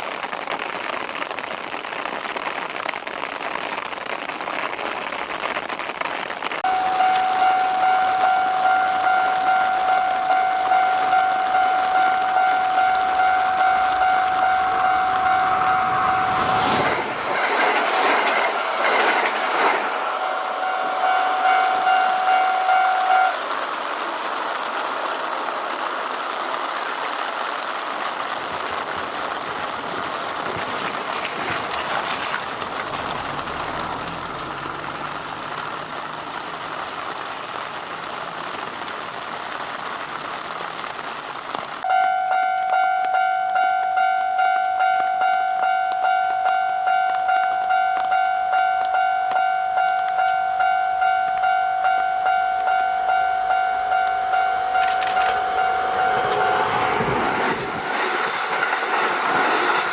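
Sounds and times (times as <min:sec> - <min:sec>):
train wheels on rails: 0:06.6 - 0:27.4, 0:28.1 - 0:39.6, 0:41.5 - 0:59.9
level-crossing alarm bell ringing: 0:06.7 - 0:16.6, 0:20.2 - 0:23.3, 0:41.9 - 0:56.9.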